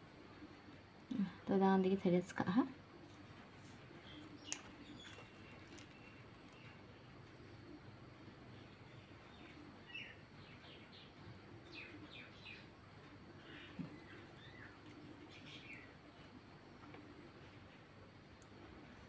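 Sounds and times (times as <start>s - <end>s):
low room hum: 0.0s - 19.0s
faint bird chirps: 3.9s - 16.7s.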